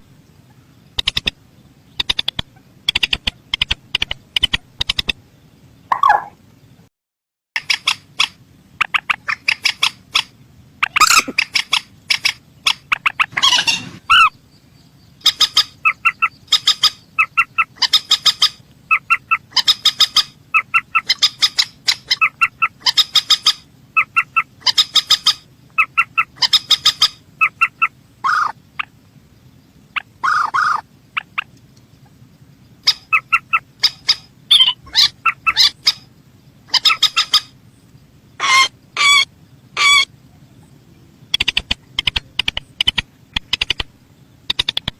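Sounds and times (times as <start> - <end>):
bird calling with ticking notes: 0.0 - 6.9, 7.6 - 44.9
harsh bird squawks: 5.9 - 6.4, 7.6 - 14.4, 15.2 - 28.9, 29.9 - 31.5, 32.8 - 37.6, 38.4 - 40.6, 41.3 - 43.9.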